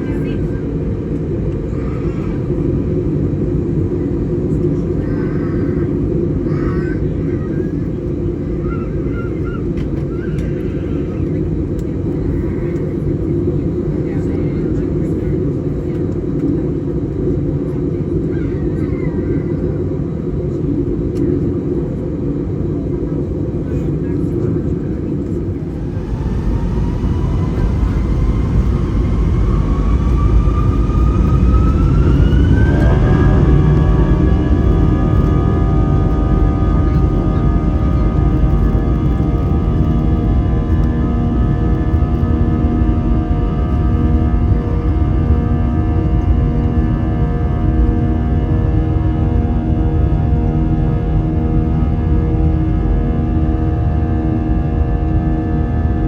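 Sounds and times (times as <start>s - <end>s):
airliner cabin rumble: 0.0s - 56.0s
jet engines spooling up: 24.0s - 55.4s.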